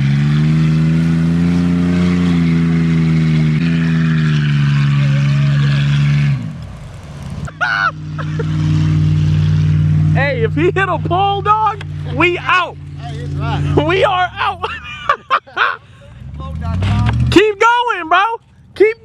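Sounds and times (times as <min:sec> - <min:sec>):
vehicle engine driving through snow: 0:05.6 - 0:07.8
engine idling: 0:06.2 - 0:08.2.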